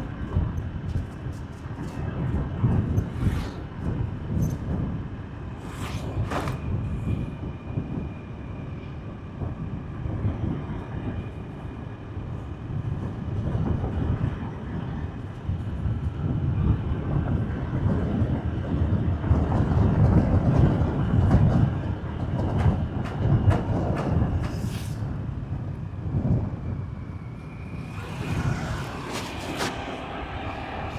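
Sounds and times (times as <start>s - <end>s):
motorbike road noise rumble: 0.0s - 7.4s, 27.2s - 30.9s
faint steady whine: 24.6s - 30.9s.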